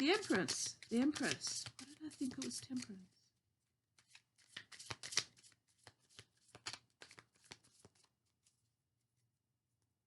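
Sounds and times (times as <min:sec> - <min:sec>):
cards being shuffled: 0:00.0 - 0:03.2, 0:04.0 - 0:08.7.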